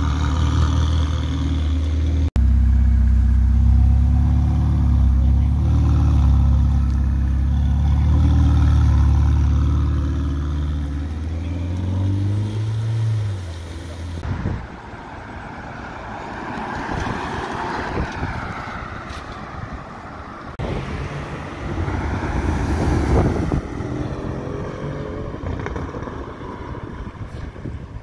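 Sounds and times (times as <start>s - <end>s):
sports car engine pulling away: 0.0s - 14.2s, 20.6s - 27.8s
car engine passing: 0.0s - 27.9s.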